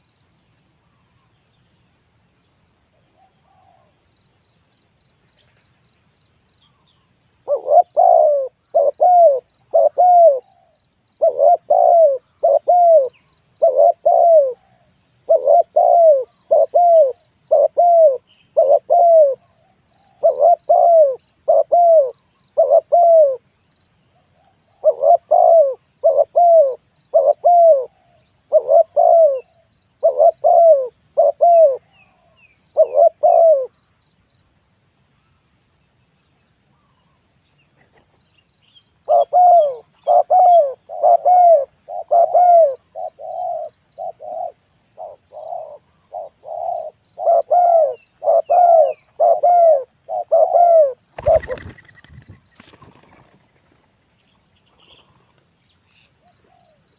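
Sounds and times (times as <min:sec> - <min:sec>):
dove cooing: 0:03.1 - 0:04.0, 0:07.4 - 0:23.5, 0:24.2 - 0:33.8, 0:39.0 - 0:53.8, 0:56.2 - 0:56.9.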